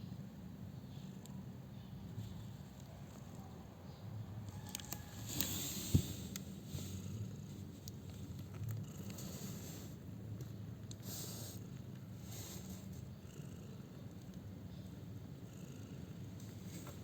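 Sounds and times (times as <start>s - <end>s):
kittens rustling in bedding: 4.6s - 8.3s.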